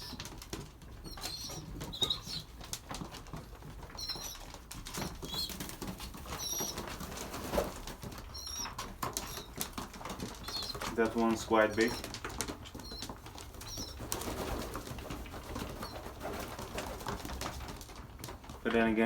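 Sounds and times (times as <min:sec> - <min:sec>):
pigeons pecking and shuffling: 0:00.0 - 0:19.0
high-pitched peeps: 0:01.0 - 0:02.5, 0:03.9 - 0:04.5, 0:06.3 - 0:06.9, 0:08.3 - 0:09.6, 0:10.4 - 0:10.9, 0:11.6 - 0:12.1, 0:12.8 - 0:14.0.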